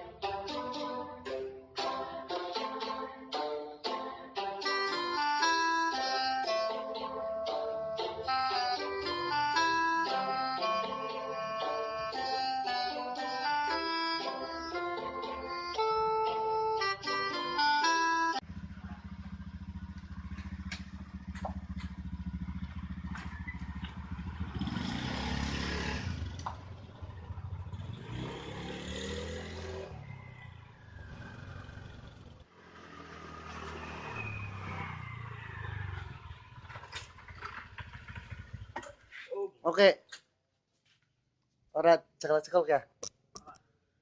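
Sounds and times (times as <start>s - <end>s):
guitar music: 0.0s - 18.4s
motorcycle engine revving: 18.4s - 39.2s.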